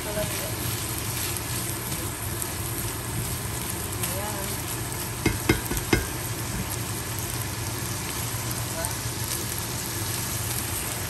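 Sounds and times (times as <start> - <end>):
spatula stirring in a pan: 0.0 - 6.7
meat sizzling in a frying pan: 0.0 - 11.0.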